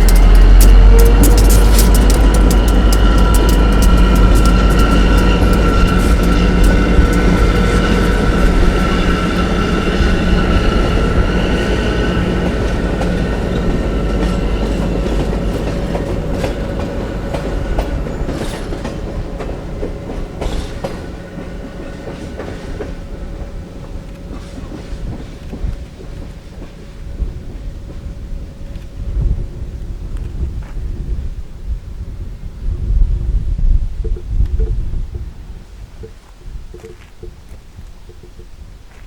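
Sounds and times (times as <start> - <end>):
wheels clicking over rail joints: 0.0 - 27.0
locomotive whine: 0.0 - 30.6
diesel locomotive rumbling: 0.0 - 35.3.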